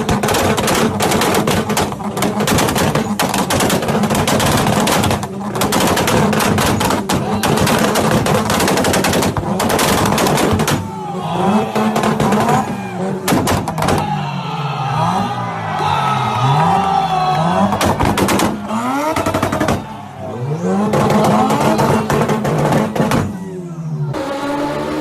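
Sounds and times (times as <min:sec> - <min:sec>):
exhaust pops and bangs: 0:00.0 - 0:11.0, 0:11.6 - 0:14.1, 0:17.6 - 0:20.0, 0:20.8 - 0:23.4
engine revving: 0:00.0 - 0:25.0.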